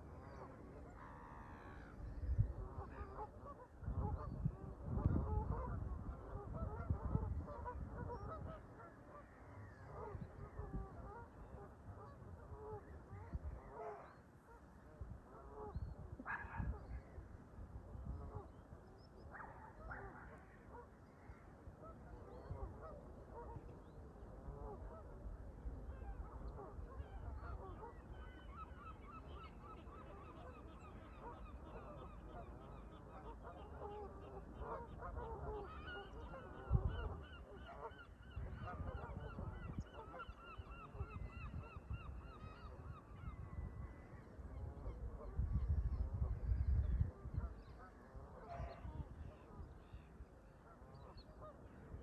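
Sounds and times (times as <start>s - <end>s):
low wind rumble: 3.7s - 8.6s, 43.3s - 47.7s
geese honking: 26.1s - 41.9s.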